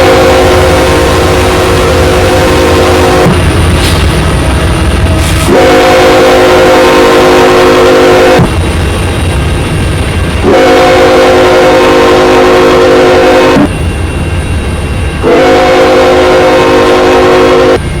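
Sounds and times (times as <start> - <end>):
locomotive air horn blasts: 0.0 - 3.5, 5.2 - 8.5, 10.4 - 13.7, 15.2 - 17.8
low rumble of passing train: 0.0 - 18.0.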